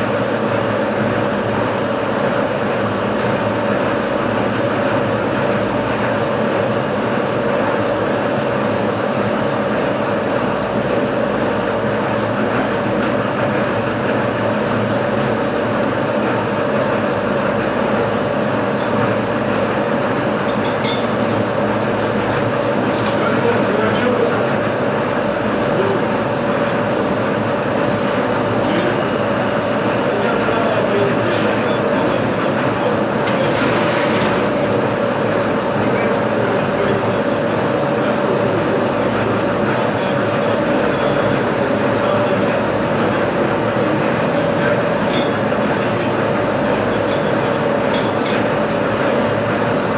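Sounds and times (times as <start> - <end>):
machine tool running: 25.2 - 49.9.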